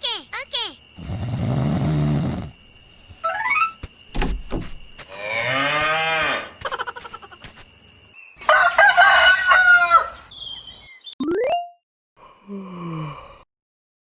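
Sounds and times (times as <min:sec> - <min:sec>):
short knocks: 0:03.8 - 0:05.1
overlapping animal calls: 0:05.0 - 0:07.6.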